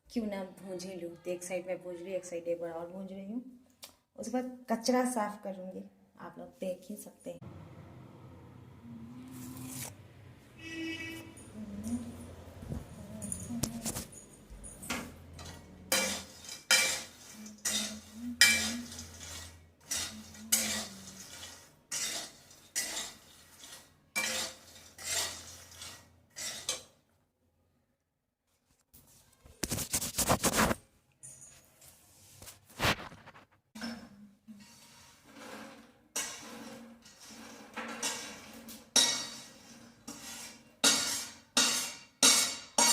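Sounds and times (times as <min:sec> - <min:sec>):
metal utensils and dishes clattering: 0:13.0 - 0:27.0, 0:33.8 - 0:42.9.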